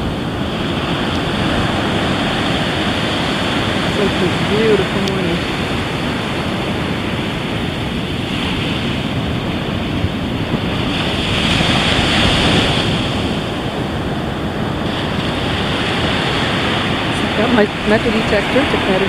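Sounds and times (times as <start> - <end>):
surf breaking on beach: 0.0 - 19.0
wind buffeting microphone: 0.0 - 19.0.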